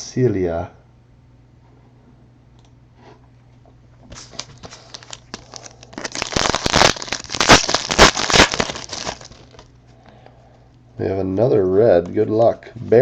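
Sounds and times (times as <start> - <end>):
low steady hum: 0.0 - 13.0
foil wrapper tearing and crinkling: 4.1 - 9.7.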